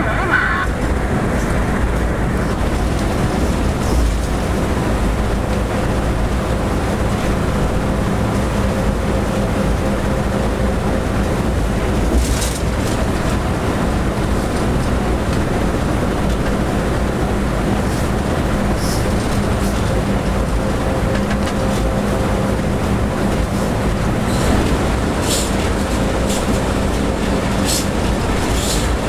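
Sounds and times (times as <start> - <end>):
locomotive engine running: 0.0 - 29.0.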